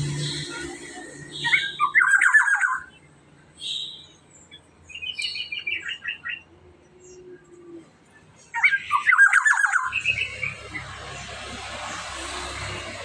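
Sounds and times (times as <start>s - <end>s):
bird calling warbled notes: 0.0s - 3.0s, 8.5s - 10.6s.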